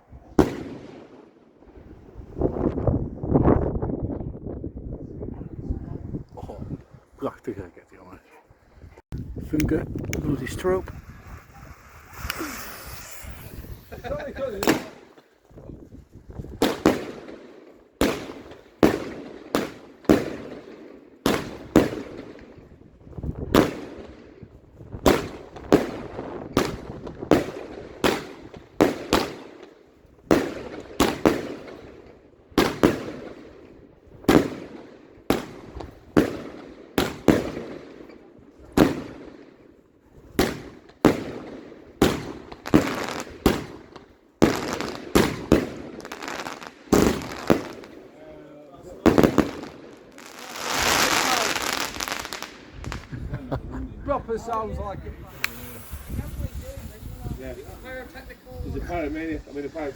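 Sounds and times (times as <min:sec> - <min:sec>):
fireworks bangs with echo: 0:00.2 - 0:02.0, 0:09.8 - 0:15.2, 0:16.5 - 0:39.6, 0:40.3 - 0:53.2.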